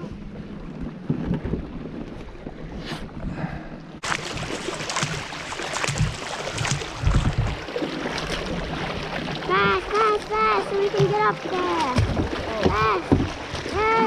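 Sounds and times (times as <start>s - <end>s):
paddle splashing water: 4.0s - 14.0s.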